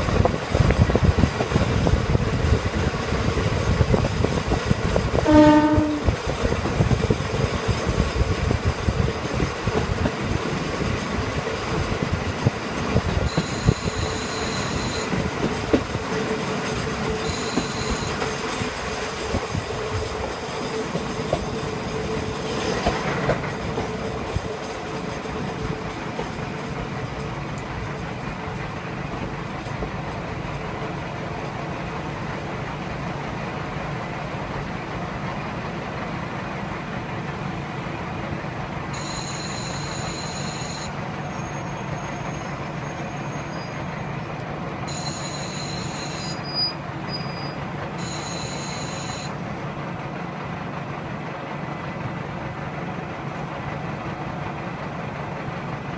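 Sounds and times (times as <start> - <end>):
train engine and wheel rumble: 0.0 - 55.9
high-pitched wheel squeals: 13.3 - 15.2, 17.2 - 18.2, 39.0 - 43.9, 44.9 - 49.3.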